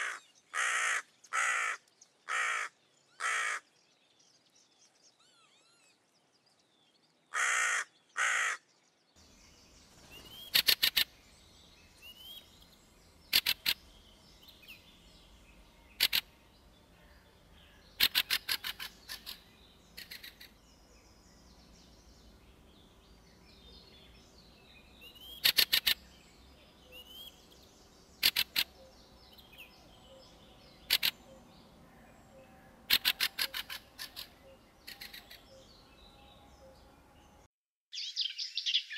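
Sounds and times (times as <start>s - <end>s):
crow cawing: 0.0s - 3.7s, 7.3s - 8.6s
faint birdsong: 0.0s - 38.9s
bird chattering calls: 10.2s - 11.1s, 13.3s - 13.9s, 15.9s - 16.4s, 17.9s - 20.6s, 25.2s - 26.0s, 28.2s - 28.9s, 30.8s - 31.4s, 32.9s - 35.5s.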